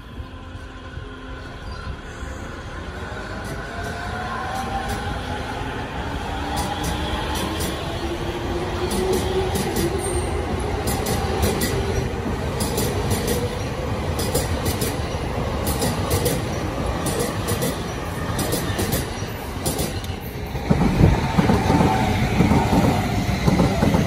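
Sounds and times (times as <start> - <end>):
electric train wheels rumbling: 0.0 - 24.0
train wheel clacks: 10.8 - 24.0.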